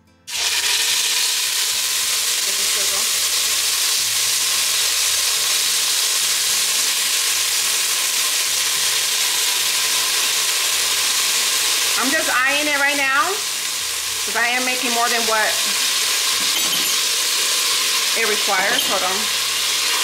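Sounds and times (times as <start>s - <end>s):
food sizzling in hot oil: 0.3s - 20.0s.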